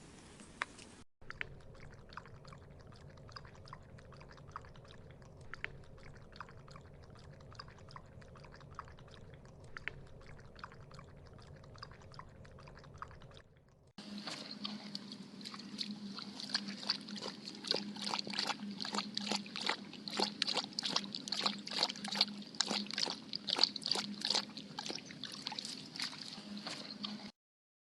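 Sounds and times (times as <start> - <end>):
low steady hum: 0.0 - 27.3
dog lapping water: 1.2 - 27.4.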